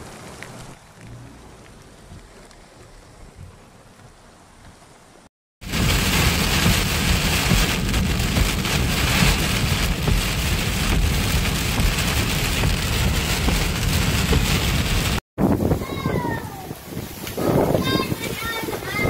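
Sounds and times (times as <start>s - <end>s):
heavy rain drumming on car: 5.6s - 19.0s.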